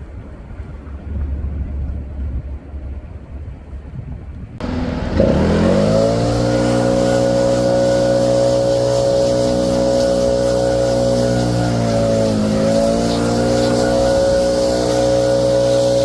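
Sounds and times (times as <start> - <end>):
engine revving: 4.6 - 16.0
vehicle engine idling: 4.6 - 16.0.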